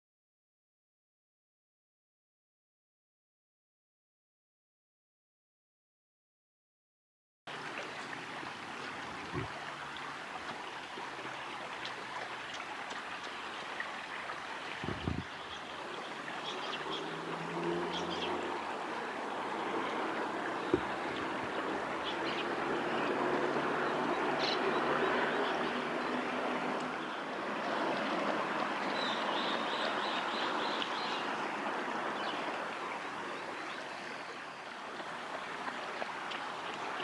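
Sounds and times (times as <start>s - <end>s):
river water rushing: 7.5s - 37.0s.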